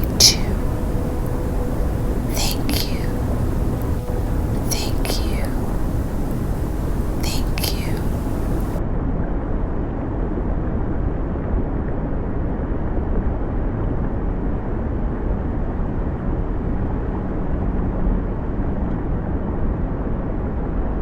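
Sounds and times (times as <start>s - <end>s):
low rumbling nature ambience: 0.0s - 8.8s.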